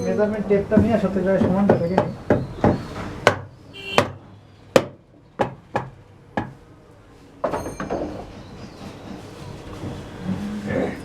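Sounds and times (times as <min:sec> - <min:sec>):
workshop clatter: 0:00.0 - 0:11.0
sharp knocks: 0:00.7 - 0:06.6.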